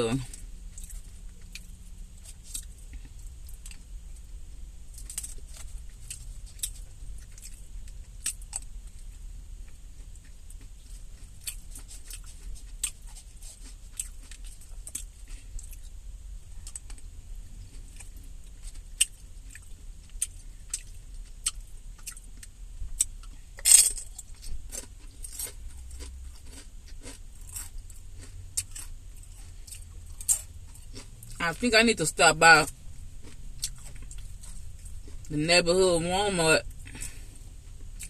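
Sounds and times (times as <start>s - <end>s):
low steady rumble: 0.0s - 38.0s
chips and salad being crunched: 23.6s - 28.9s.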